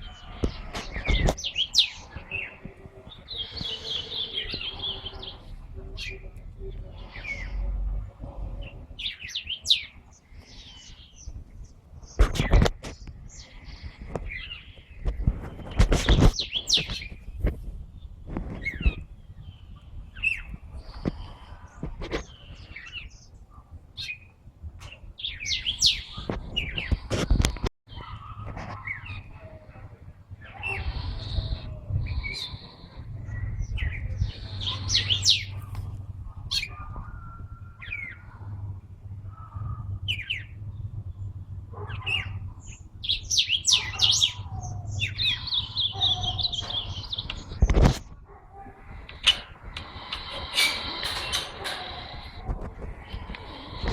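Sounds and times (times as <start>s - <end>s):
songbirds chirping: 0.0s - 53.9s
steady low hum: 29.8s - 43.6s.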